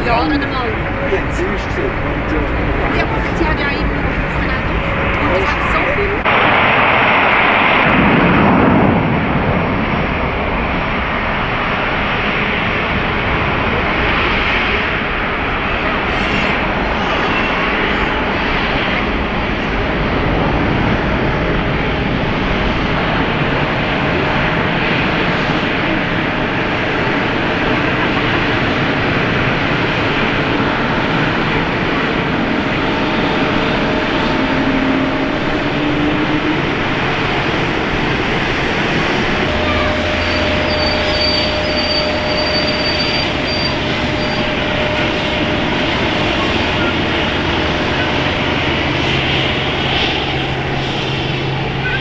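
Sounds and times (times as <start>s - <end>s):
jet engines rushing: 0.0s - 52.0s
thin high whine: 32.7s - 52.0s.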